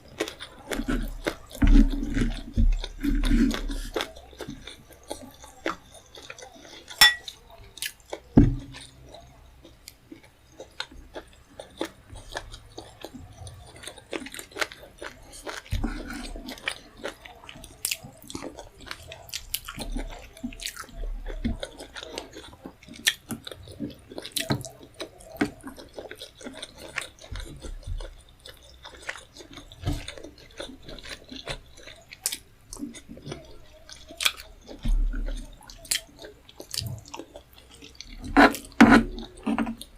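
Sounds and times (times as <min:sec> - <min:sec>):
person chewing food: 0:00.0 - 0:39.9
sharp ringing clink: 0:07.0 - 0:07.3.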